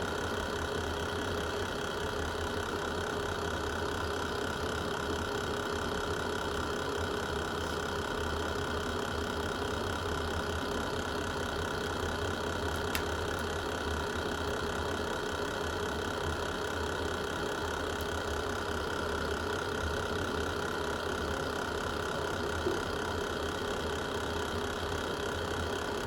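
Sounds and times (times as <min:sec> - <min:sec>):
fire crackle: 0:12.7 - 0:13.8, 0:17.9 - 0:18.2.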